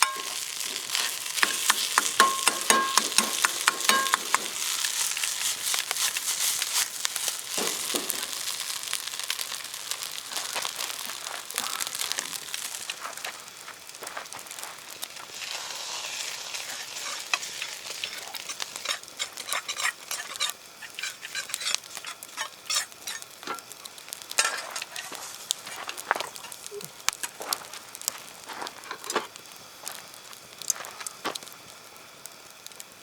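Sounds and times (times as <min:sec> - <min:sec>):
spatula scraping a pan: 0:00.0 - 0:12.9, 0:15.2 - 0:26.6
rice sizzling in a wok: 0:00.0 - 0:33.0.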